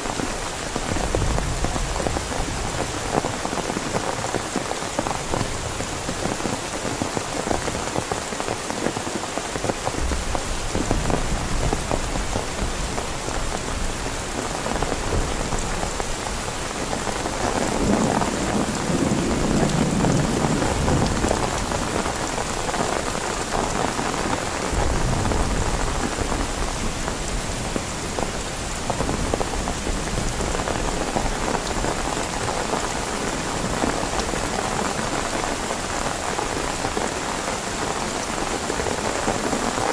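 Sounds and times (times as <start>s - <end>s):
heavy rain on a tent: 0.0s - 39.9s
thunder rumbling: 10.0s - 33.0s.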